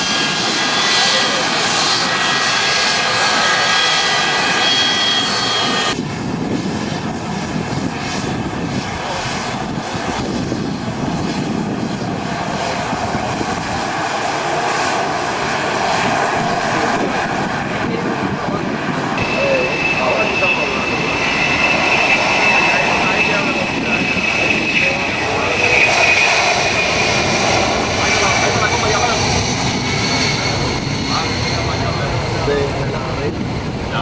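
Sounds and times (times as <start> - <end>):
aircraft engines running: 0.0 - 34.0
high whining tones: 19.2 - 33.1.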